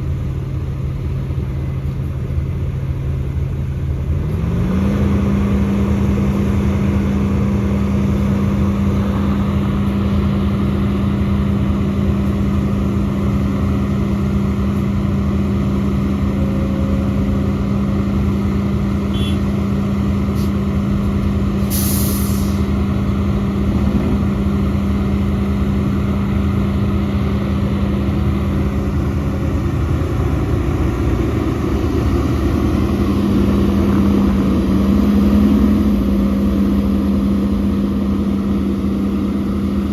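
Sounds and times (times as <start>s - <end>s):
diesel engine at high revs: 0.0s - 39.9s
sharp hiss of air: 21.6s - 22.7s.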